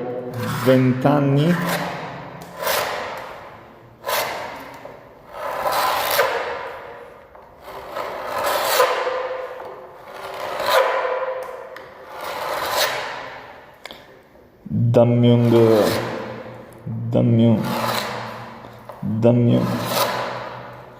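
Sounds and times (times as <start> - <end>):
scraper scraping wooden door: 4.0 - 6.8, 7.6 - 11.2.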